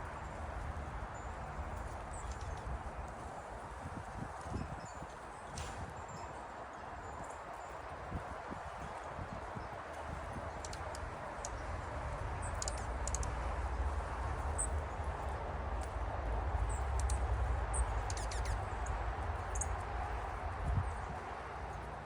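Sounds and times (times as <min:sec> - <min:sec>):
small birds chirping: 0:12.4 - 0:13.3, 0:16.6 - 0:21.2.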